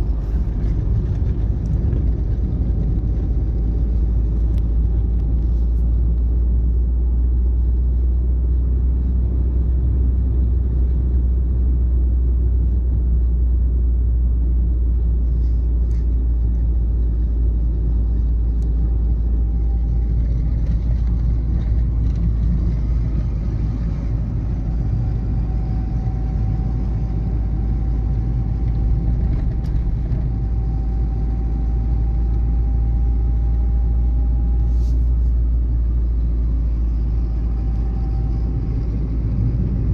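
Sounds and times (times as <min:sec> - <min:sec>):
car engine and road rumble: 0:00.0 - 0:39.9
faint thin whine: 0:18.2 - 0:39.9.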